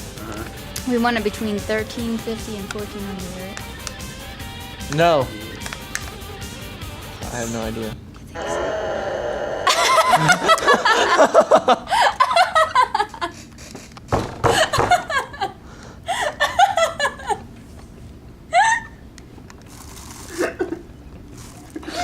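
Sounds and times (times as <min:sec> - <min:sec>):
squealing laugh: 0:09.4 - 0:13.9
people laughing: 0:09.6 - 0:17.5.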